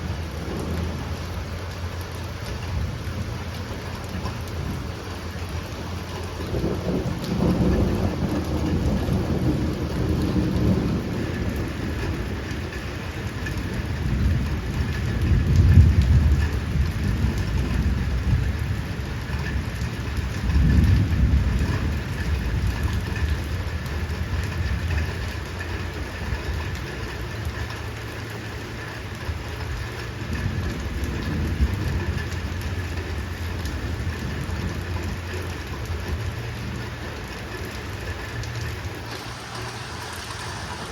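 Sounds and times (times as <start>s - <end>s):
thunder rolling: 0.0s - 23.6s, 38.2s - 40.9s
heavy rain falling: 0.0s - 40.9s.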